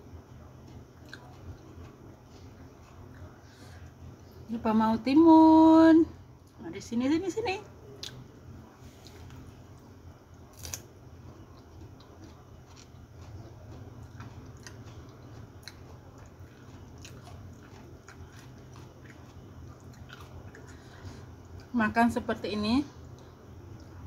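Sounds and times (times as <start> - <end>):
low steady hum: 0.0 - 24.0
biting and chewing cucumber: 0.6 - 3.4, 10.5 - 20.8.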